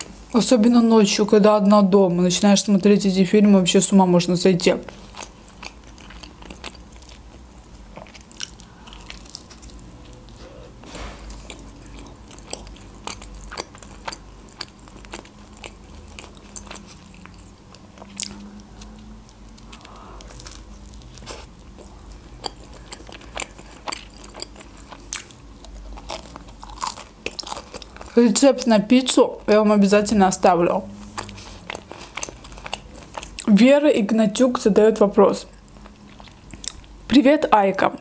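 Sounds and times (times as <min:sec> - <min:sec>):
crunchy pizza chewing: 0:04.8 - 0:28.2, 0:30.8 - 0:33.5, 0:35.5 - 0:37.0.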